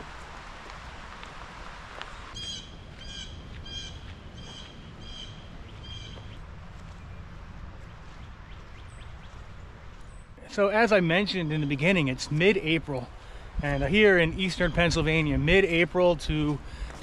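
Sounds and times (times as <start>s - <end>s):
low outdoor background noise: 0.0s - 17.0s
bird calling: 2.1s - 6.4s.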